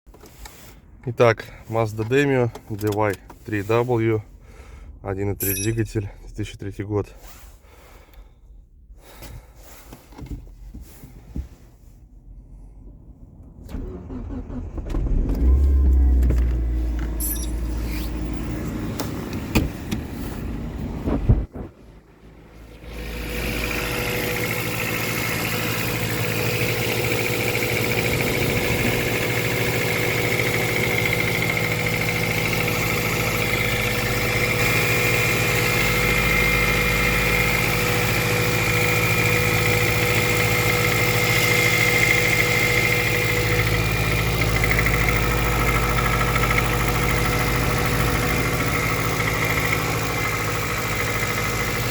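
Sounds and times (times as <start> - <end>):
car engine starting and idling: 0.1 - 51.9
engine knocking: 22.9 - 51.9.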